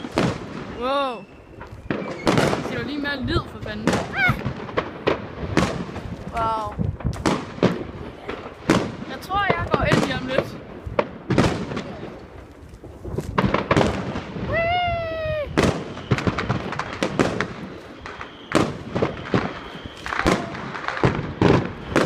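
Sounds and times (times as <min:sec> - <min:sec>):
fireworks and firecrackers banging: 0:00.0 - 0:22.0.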